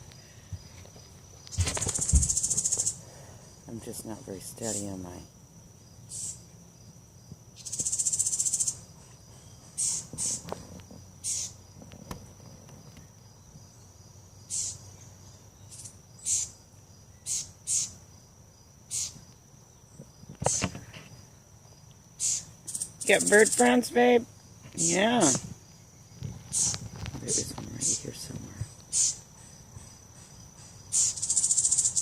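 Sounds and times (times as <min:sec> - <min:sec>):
small birds scolding calls: 0:01.4 - 0:03.3, 0:05.9 - 0:06.6, 0:07.6 - 0:11.8, 0:13.0 - 0:18.0, 0:18.9 - 0:19.4, 0:22.2 - 0:32.0
harsh buzzy bird call: 0:09.8 - 0:10.5, 0:11.2 - 0:11.6, 0:14.5 - 0:14.8, 0:15.7 - 0:16.6, 0:17.2 - 0:18.0, 0:18.9 - 0:19.2, 0:22.2 - 0:23.8, 0:26.5 - 0:26.8, 0:28.9 - 0:29.3, 0:30.9 - 0:32.0.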